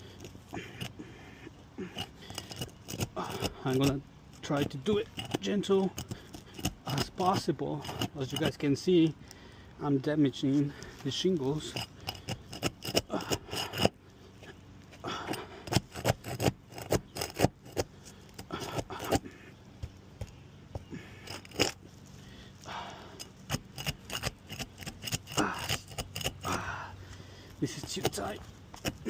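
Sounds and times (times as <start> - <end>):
tool scraping roof shingles: 1.8 - 8.7, 10.8 - 19.5, 20.2 - 22.0, 22.6 - 26.7, 27.6 - 29.0.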